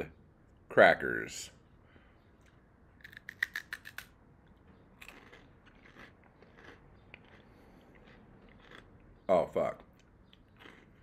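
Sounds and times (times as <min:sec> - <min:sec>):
person chewing crackers: 0:02.4 - 0:11.0.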